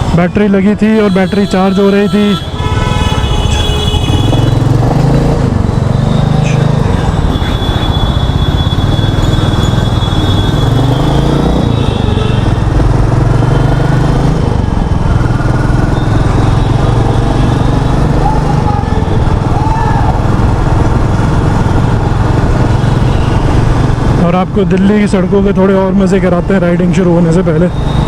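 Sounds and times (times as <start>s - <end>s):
motorcycle engine running: 2.5s - 24.3s.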